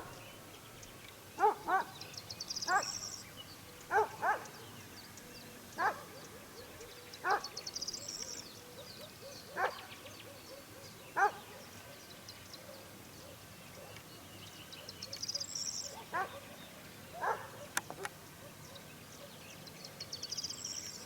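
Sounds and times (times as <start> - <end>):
songbird singing: 0.0 - 21.0
dog barking: 1.4 - 2.0, 2.7 - 3.0, 3.9 - 4.6, 5.8 - 7.6, 9.2 - 11.7, 15.9 - 16.5, 17.2 - 19.4.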